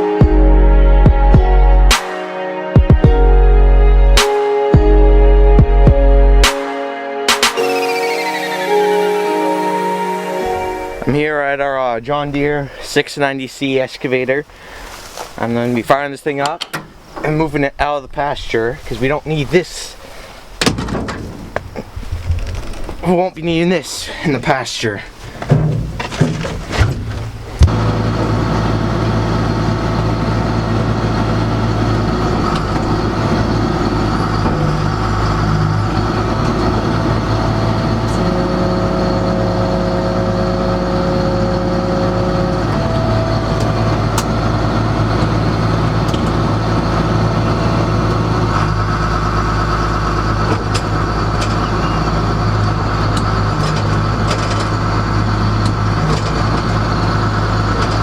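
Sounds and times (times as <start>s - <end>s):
high-pitched whine: 7.5s - 11.5s
excavator diesel engine running: 27.3s - 58.0s.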